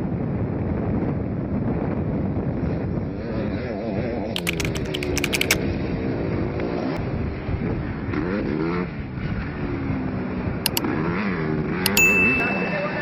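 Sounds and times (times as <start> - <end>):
crackling clicks: 4.4 - 5.6.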